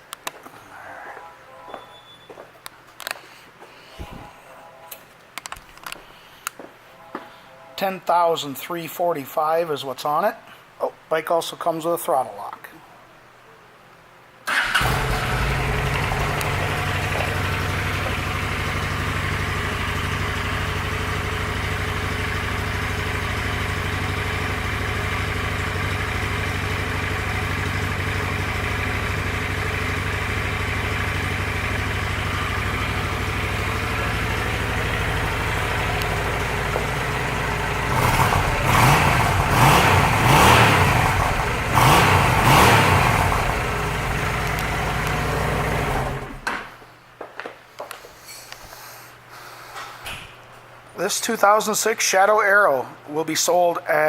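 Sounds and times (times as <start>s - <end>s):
motorcycle engine idling and revving: 14.5s - 46.4s.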